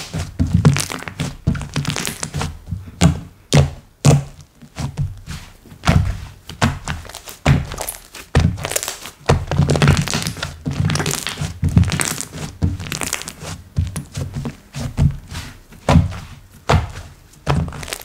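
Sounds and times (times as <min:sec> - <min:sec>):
slime squished by hand: 0:00.0 - 0:02.6, 0:05.8 - 0:15.0, 0:15.9 - 0:18.0.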